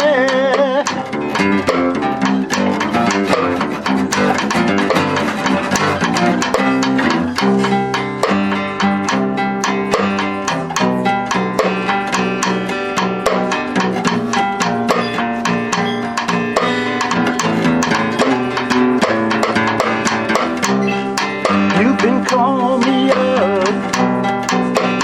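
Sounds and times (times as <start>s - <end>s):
person singing with vibrato: 0.0s - 1.1s, 21.7s - 24.0s
acoustic guitars picking: 0.0s - 25.0s
bass notes: 0.0s - 25.0s.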